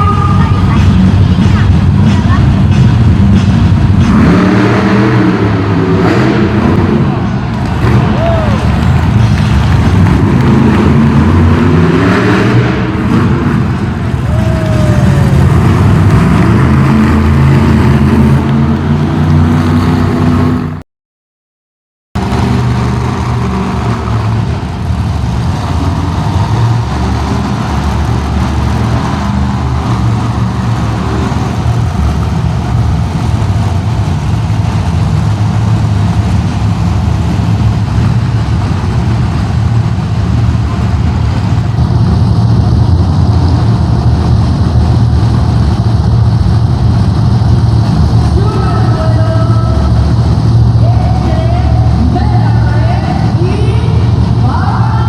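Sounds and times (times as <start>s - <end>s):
monster truck engines droning: 0.0s - 20.8s, 22.2s - 55.0s.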